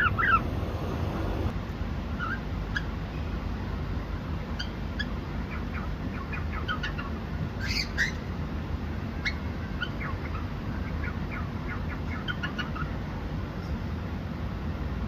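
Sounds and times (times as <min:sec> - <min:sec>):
cockatiels chirping: 0:00.0 - 0:00.6, 0:02.2 - 0:02.9, 0:04.6 - 0:08.2, 0:09.2 - 0:12.9
harsh bird call: 0:00.0 - 0:01.4
steady low hum: 0:00.0 - 0:02.7.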